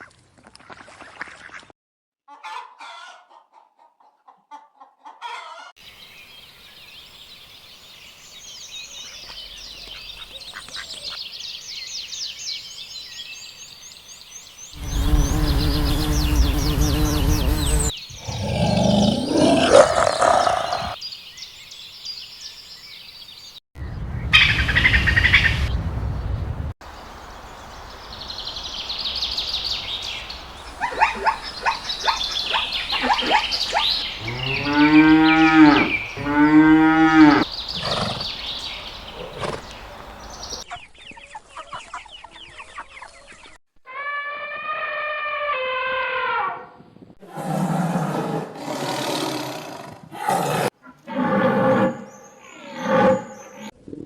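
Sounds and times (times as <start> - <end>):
bird chirps: 5.9 - 19.2, 20.4 - 26.5, 27.1 - 43.6
cow mooing: 14.8 - 21.0, 34.2 - 37.5
high-pitched animal call: 43.9 - 46.7.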